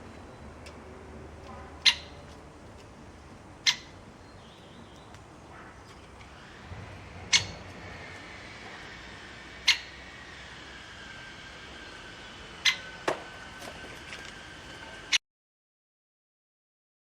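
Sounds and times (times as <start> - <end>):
bird calling: 1.4 - 2.4, 3.6 - 15.2.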